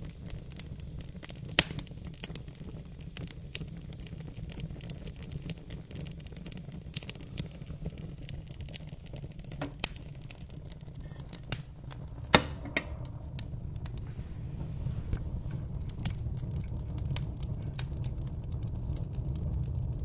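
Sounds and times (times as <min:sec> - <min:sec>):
wood fire crackling: 0:00.0 - 0:20.0
low rumble: 0:09.8 - 0:20.0.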